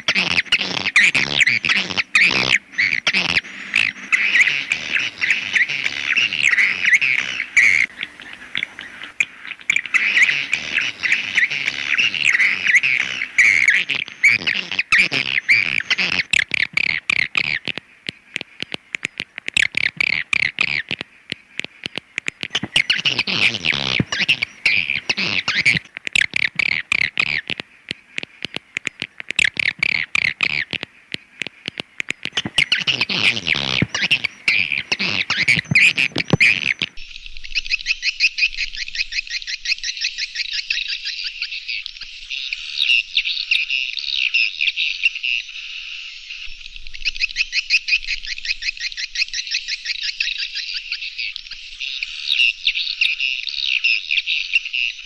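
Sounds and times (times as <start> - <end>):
swiftlet chirping and twittering: 0.0 - 21.0, 21.6 - 38.3
fast high twitter: 22.4 - 27.6.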